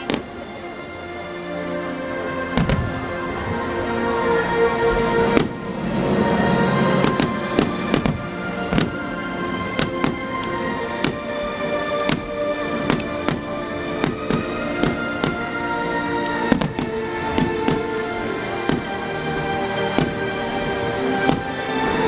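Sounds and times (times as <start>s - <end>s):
music with sustained notes: 0.0s - 22.0s
fireworks bangs: 2.5s - 3.2s, 6.8s - 11.4s, 12.0s - 15.6s, 16.5s - 21.6s.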